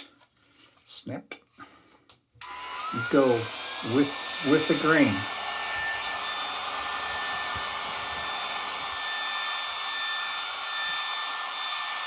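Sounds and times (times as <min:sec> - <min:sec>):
vacuum hair clippers whirring: 0:02.4 - 0:12.0.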